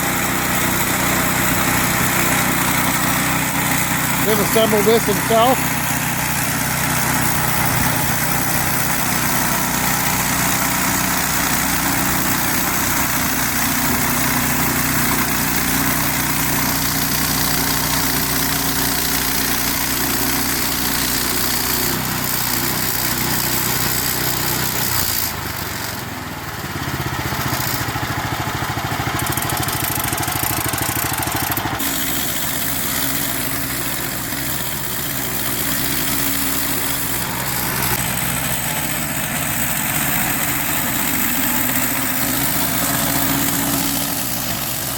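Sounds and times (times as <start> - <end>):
sawmill engine sawing log: 0.0 - 44.9.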